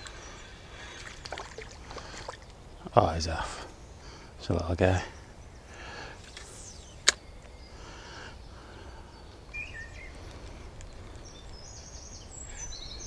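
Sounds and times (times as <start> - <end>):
birds chirping: 0.0 - 13.0
sharp click: 6.3 - 7.5.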